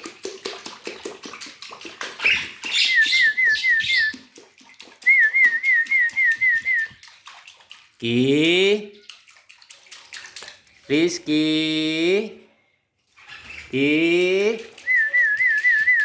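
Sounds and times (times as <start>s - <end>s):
rapid patter of clicks: 0.0s - 2.7s.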